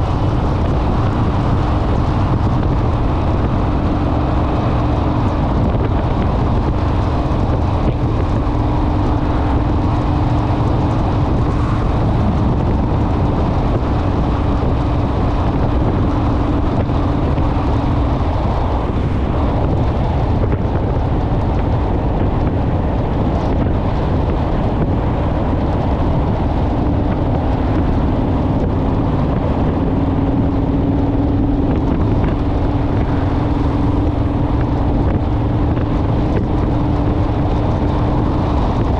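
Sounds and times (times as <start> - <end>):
motorcycle engine running: 0.0 - 38.9
wind rush over microphone: 0.0 - 38.9.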